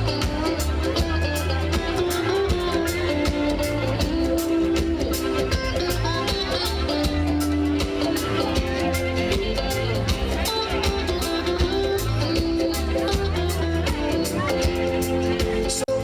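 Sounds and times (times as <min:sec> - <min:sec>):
reggae band playing: 0:00.0 - 0:16.0.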